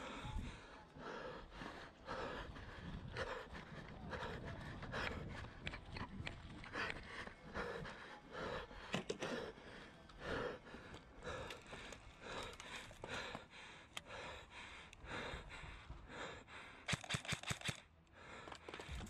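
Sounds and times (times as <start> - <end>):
heavy rhythmic breathing: 0.0 - 19.0
rapid sharp clicks: 16.8 - 17.9.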